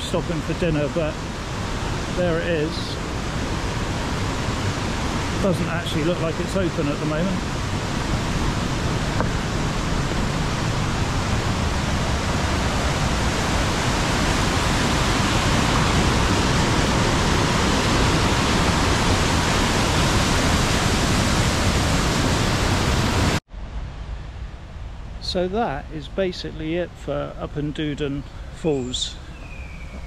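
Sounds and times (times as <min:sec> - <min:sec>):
loud rush of river water: 0:00.0 - 0:23.4.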